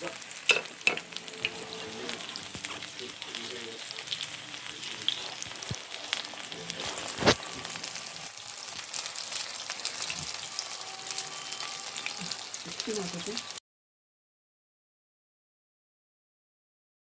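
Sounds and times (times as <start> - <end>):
batter sizzling in oil: 0.0 - 13.6.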